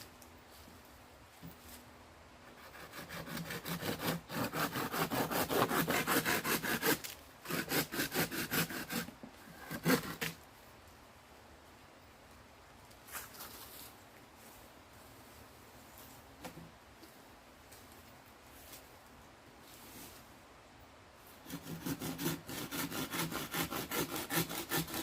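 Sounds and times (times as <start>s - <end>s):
hand saw cutting wood: 2.5s - 10.4s, 21.4s - 25.0s.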